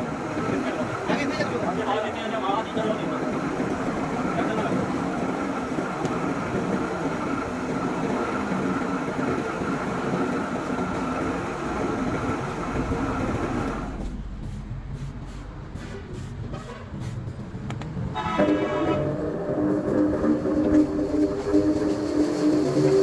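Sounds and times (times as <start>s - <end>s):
machine whine: 18.2s - 23.0s
low pulsing machine hum: 18.6s - 23.0s.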